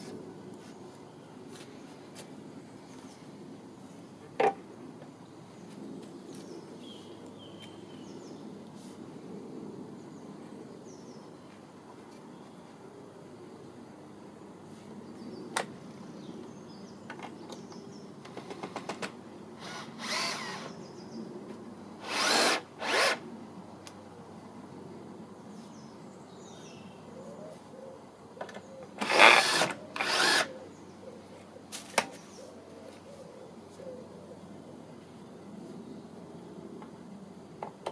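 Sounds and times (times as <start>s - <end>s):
faint birdsong: 0.0s - 37.3s
power drill bursts: 19.6s - 20.7s, 22.0s - 23.2s, 29.0s - 30.5s.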